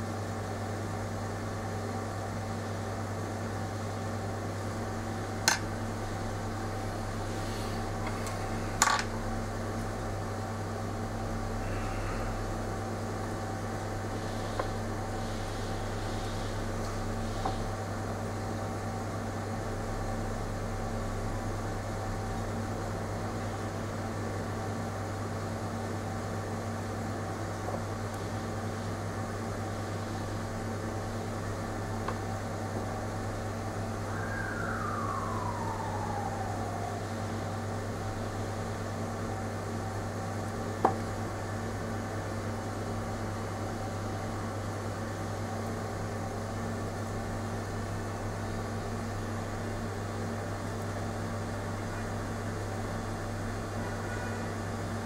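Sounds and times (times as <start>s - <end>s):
electrical hum: 0.0s - 55.0s
falling tone: 34.0s - 37.8s.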